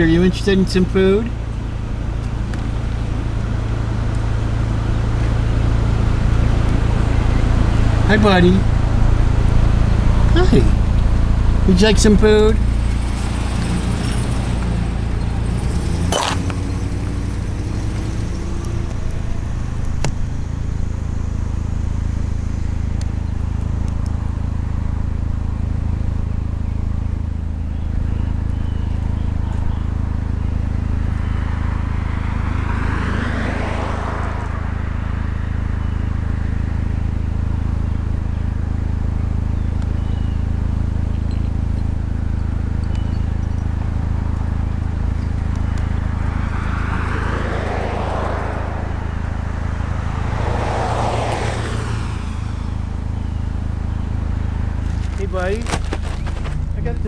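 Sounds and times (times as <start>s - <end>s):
car engine humming: 0.0s - 57.0s
vehicle passing: 1.9s - 22.2s, 30.5s - 35.5s, 43.9s - 53.6s, 54.3s - 57.0s.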